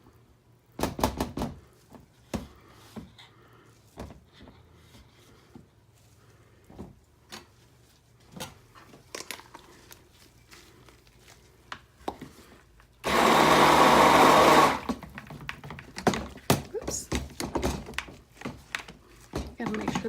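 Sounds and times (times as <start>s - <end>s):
stick blender running: 13.0s - 15.1s.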